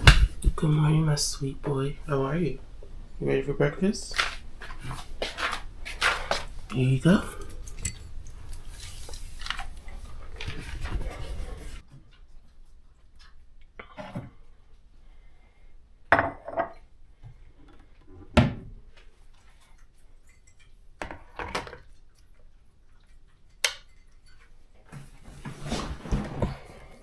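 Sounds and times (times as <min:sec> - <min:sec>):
dishes and cutlery clattering: 0:07.3 - 0:08.2, 0:20.3 - 0:21.9, 0:23.4 - 0:24.6.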